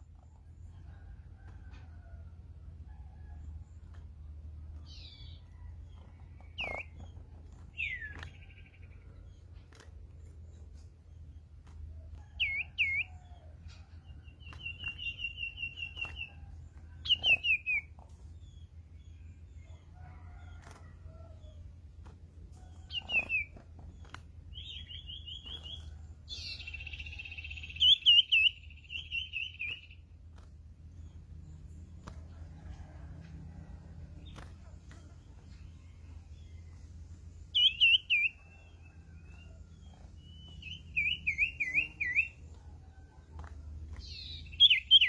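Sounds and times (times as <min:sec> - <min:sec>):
songbird whistles and trills: 0:04.8 - 0:09.0, 0:12.2 - 0:13.8, 0:14.4 - 0:18.6, 0:22.6 - 0:30.0, 0:35.7 - 0:42.7, 0:43.4 - 0:45.0.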